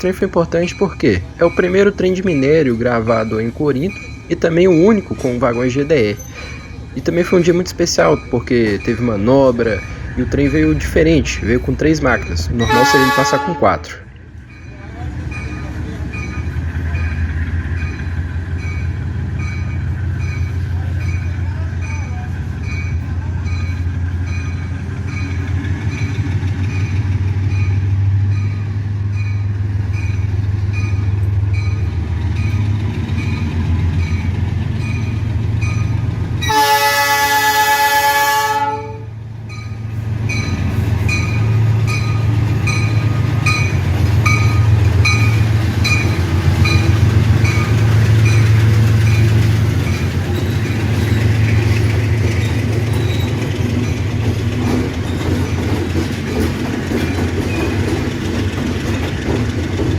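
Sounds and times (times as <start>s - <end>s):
locomotive engine drone: 0.0s - 59.9s
train air horn chord: 12.6s - 14.0s, 36.4s - 39.1s.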